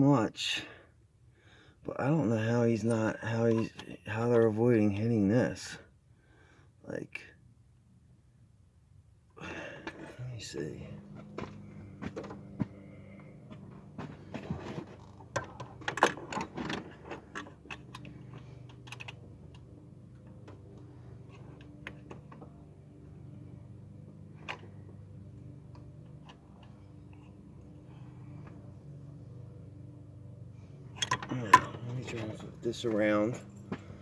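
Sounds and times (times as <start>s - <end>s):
steady low hum: 0.0s - 34.0s
small metal clicks and knocks: 13.5s - 22.5s, 30.9s - 32.2s.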